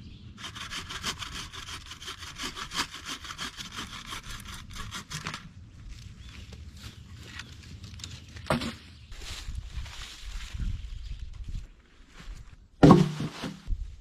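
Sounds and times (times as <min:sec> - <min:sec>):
hand saw cutting wood: 0:00.4 - 0:05.5.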